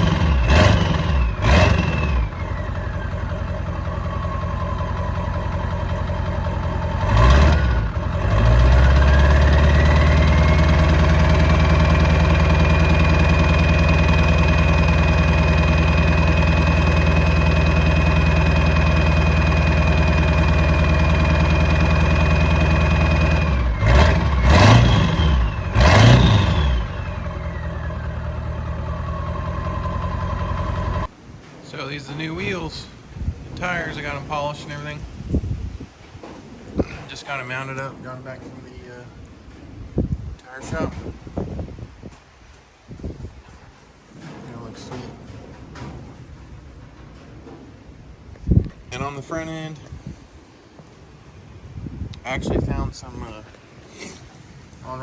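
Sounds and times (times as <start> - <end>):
turbo whine: 0.0 - 31.1
diesel engine idling and revving: 0.0 - 31.2.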